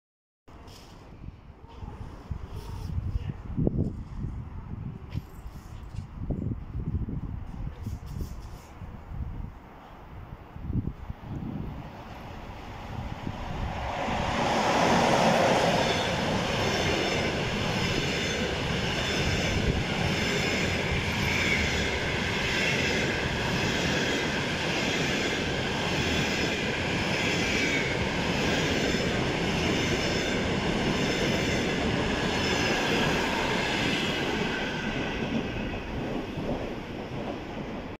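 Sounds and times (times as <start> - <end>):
train passing at speed: 9.3 - 38.0
wheels rumbling on rail: 10.6 - 38.0.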